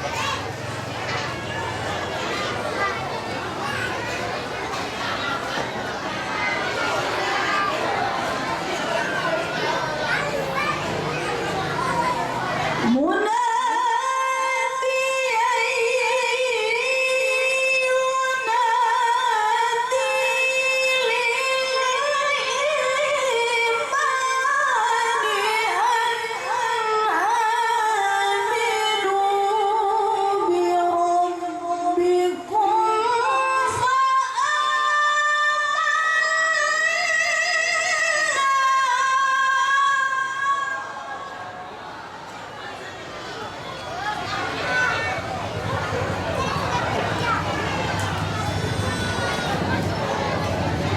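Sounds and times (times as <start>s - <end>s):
woman chanting recitation: 11.6s - 40.8s.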